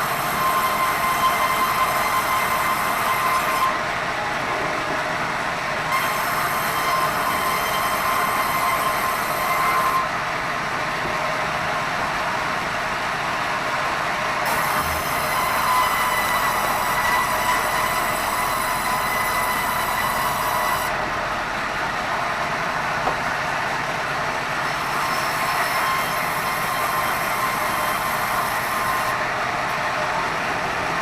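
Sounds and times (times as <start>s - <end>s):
band saw cutting wood: 0.0s - 3.8s, 5.9s - 10.2s, 14.4s - 21.0s, 24.7s - 29.2s.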